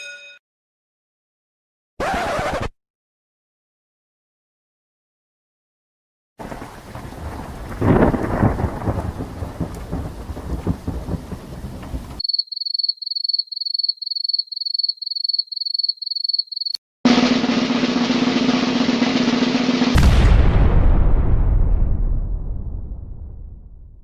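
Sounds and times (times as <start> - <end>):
rain: 6.4 - 12.2
rolling thunder: 6.4 - 12.2, 19.9 - 24.0
sustained drum roll: 17.1 - 22.0.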